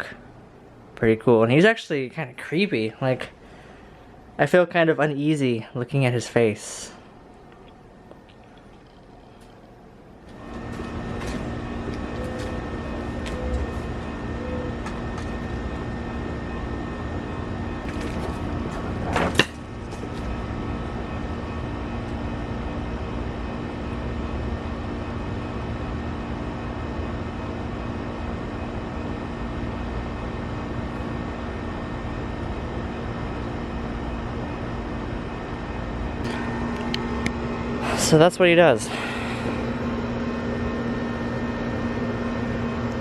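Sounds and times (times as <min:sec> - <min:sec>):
electric motor humming: 0:10.2 - 0:22.3.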